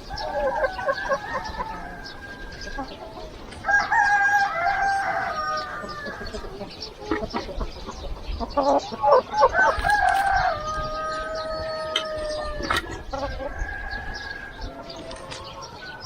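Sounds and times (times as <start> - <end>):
rooster crowing: 0.0 - 2.9, 3.6 - 6.6, 9.3 - 14.8
chicken clucks: 0.0 - 16.0.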